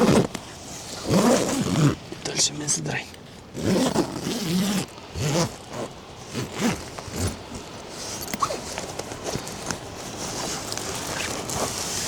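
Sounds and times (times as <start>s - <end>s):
zipper pulled: 0.0s - 2.0s, 3.6s - 12.0s
rustling: 3.6s - 12.0s.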